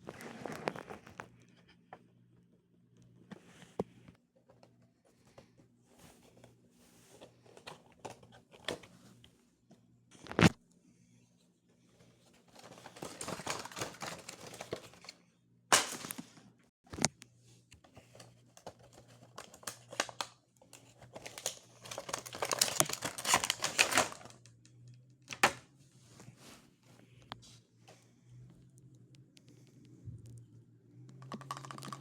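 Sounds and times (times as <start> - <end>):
cardboard and plastic rustling: 0.0 - 1.4, 4.4 - 9.2, 12.0 - 15.2, 17.8 - 24.6.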